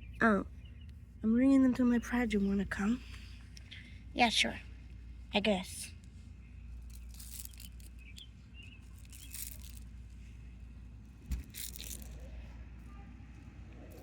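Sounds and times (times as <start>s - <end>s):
low steady hum: 0.0s - 14.0s
toy figures scraping and rustling: 6.7s - 10.5s, 11.2s - 12.5s.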